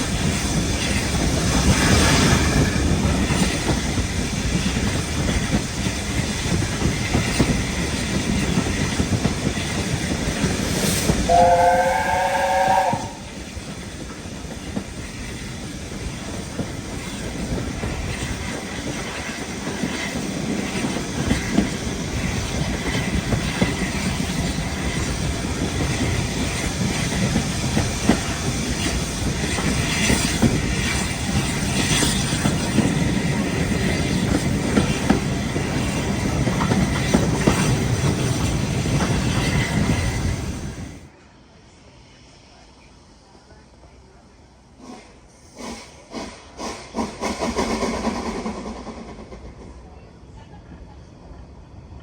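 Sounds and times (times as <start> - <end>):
train wheels rumbling on rails: 0.0 - 41.2, 41.8 - 52.0
steam locomotive chime whistle: 11.3 - 13.3.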